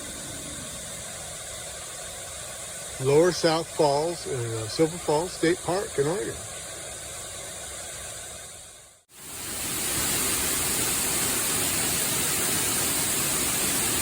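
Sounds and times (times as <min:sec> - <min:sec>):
waterfall roaring: 0:00.0 - 0:06.9.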